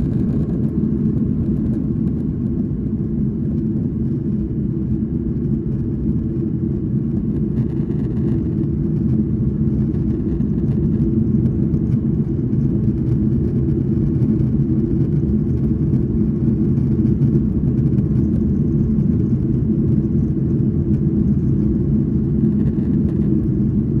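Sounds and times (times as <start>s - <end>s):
jet engines at takeoff: 0.0s - 24.0s.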